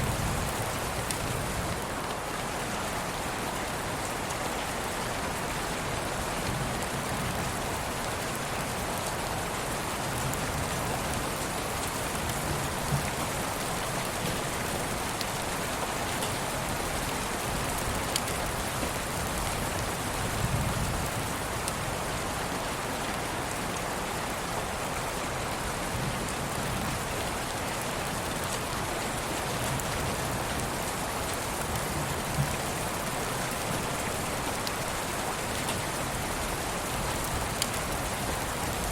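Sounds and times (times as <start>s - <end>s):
steady rain hiss: 0.0s - 38.9s
raindrop ticks: 37.2s - 38.0s.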